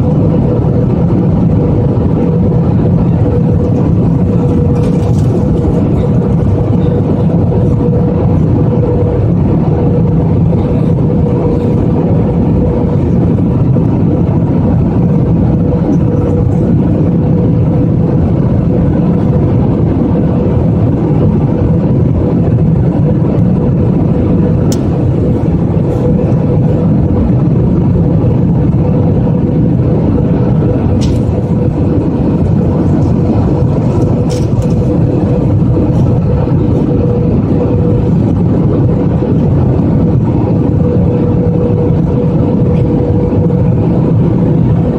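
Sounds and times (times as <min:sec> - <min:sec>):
constant hum: 0:00.0 - 0:44.9
jet engines and airflow rushing: 0:00.0 - 0:44.9.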